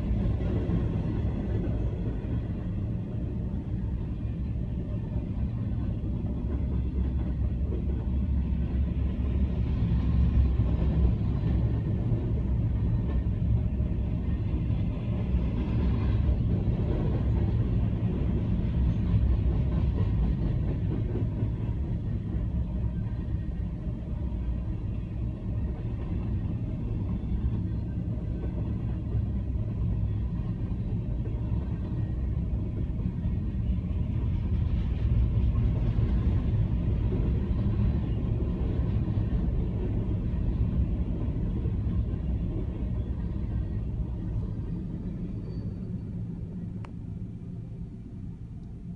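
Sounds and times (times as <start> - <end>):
train wheels rumbling on rails: 0.0 - 48.9.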